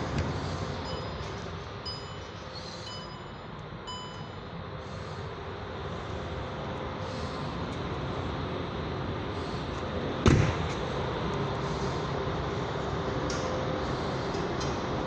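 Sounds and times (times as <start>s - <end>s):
vehicle rumble: 0.0s - 15.0s
sharp thump: 10.3s - 10.9s.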